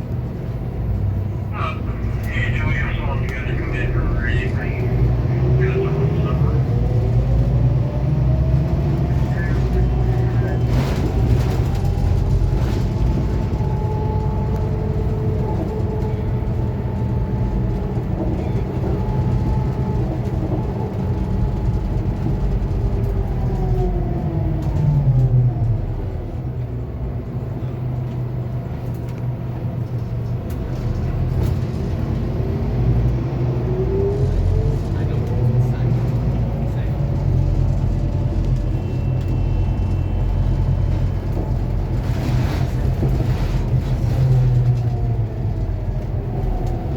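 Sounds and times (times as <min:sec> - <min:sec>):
bus engine whine: 0:00.0 - 0:46.9.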